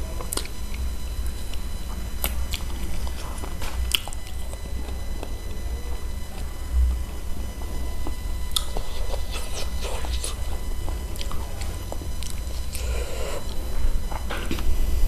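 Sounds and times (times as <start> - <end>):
steady low hum: 0.0 - 15.0
chewing and biting: 0.2 - 0.9, 2.2 - 6.1, 8.0 - 14.7
wet mouth clicks and smacks: 8.5 - 8.8.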